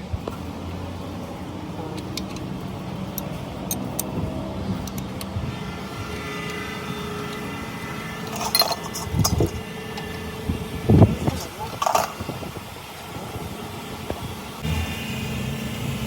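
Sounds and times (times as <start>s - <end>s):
mechanical running hum: 0.0s - 16.0s
steady whining tones: 0.0s - 16.0s
sharp metallic clicks: 1.9s - 10.3s.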